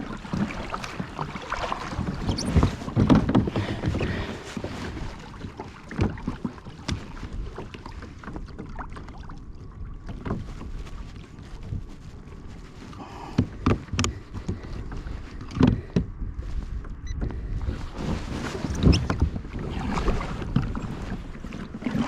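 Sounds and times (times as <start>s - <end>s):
paddle strokes splashing: 0.0s - 22.0s
wind on microphone: 9.6s - 22.0s.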